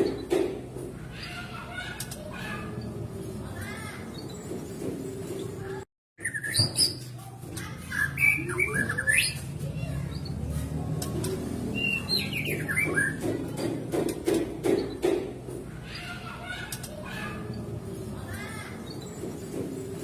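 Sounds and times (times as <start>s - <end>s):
bird whistling song: 6.2s - 7.1s, 11.7s - 13.2s.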